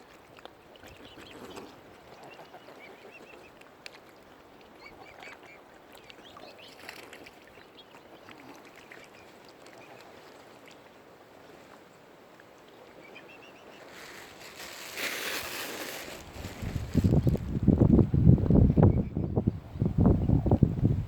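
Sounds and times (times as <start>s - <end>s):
cygnets peeping: 12.8s - 17.4s.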